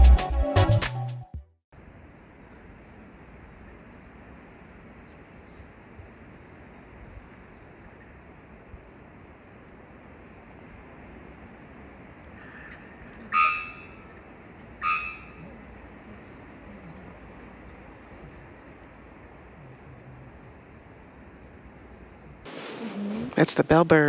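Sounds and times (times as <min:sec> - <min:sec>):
forest ambience hiss: 0:01.8 - 0:24.0
louder multi-tone bird call: 0:12.4 - 0:14.2, 0:14.8 - 0:15.4.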